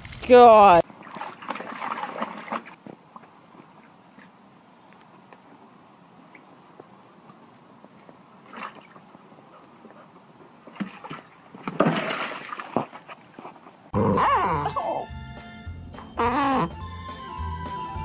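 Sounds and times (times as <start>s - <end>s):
dog wavering cry: 14.0s - 15.1s
music: 14.1s - 18.0s.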